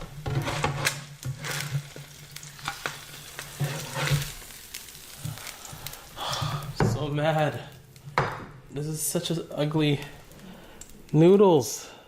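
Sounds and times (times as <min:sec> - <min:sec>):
utensil stirring and scraping: 0:00.0 - 0:06.8
noodles sizzling in hot oil: 0:00.0 - 0:12.0.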